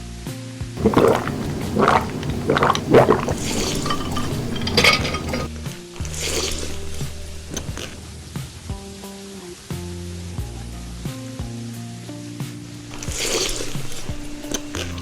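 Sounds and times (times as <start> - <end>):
dishes and cutlery clinking: 0.8 - 5.5.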